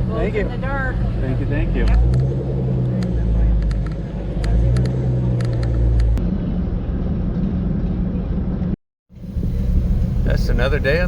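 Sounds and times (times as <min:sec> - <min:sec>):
car engine while driving: 0:00.0 - 0:11.0
road rumble: 0:00.0 - 0:11.0.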